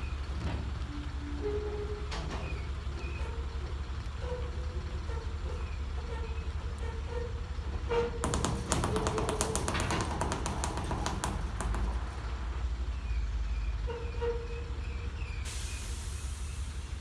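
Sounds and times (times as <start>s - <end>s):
heavy engine idling: 0.0s - 17.0s
rapid sharp clicks: 8.2s - 12.2s.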